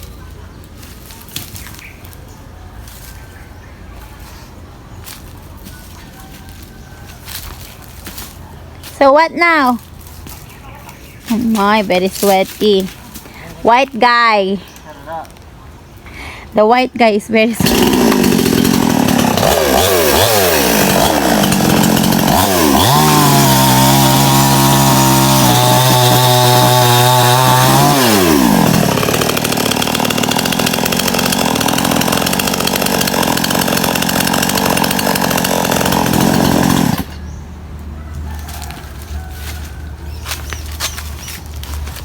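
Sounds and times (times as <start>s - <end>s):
chainsaw running: 17.4s - 37.3s.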